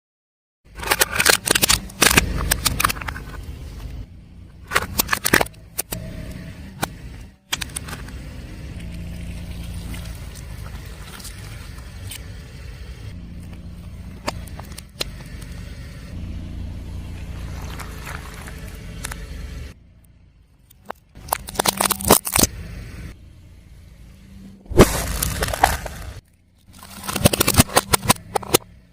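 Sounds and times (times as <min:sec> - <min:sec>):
tyre crushing crunchy objects: 0:00.7 - 0:04.0, 0:17.3 - 0:19.7, 0:20.9 - 0:22.5, 0:24.7 - 0:28.7
car engine and tyres rumbling: 0:00.7 - 0:28.9.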